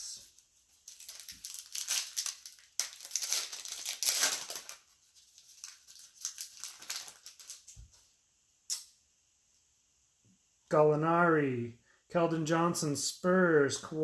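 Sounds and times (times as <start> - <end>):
foil wrapper crinkling: 0.3 - 8.0.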